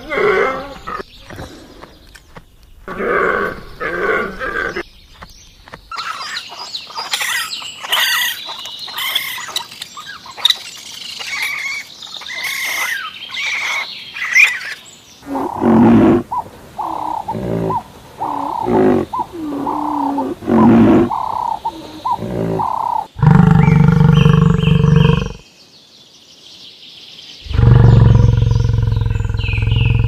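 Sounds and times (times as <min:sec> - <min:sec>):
loud low animal calls: 0:15.2 - 0:25.4, 0:27.5 - 0:30.0
pitched animal calls: 0:15.2 - 0:25.4
birds chirping and whistling: 0:16.8 - 0:25.4, 0:27.5 - 0:30.0.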